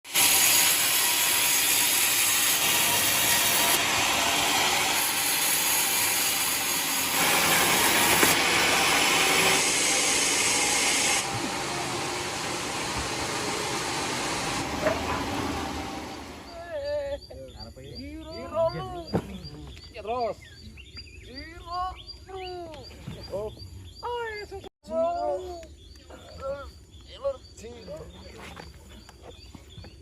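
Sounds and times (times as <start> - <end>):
saw blade cutting log: 0.1 - 16.5.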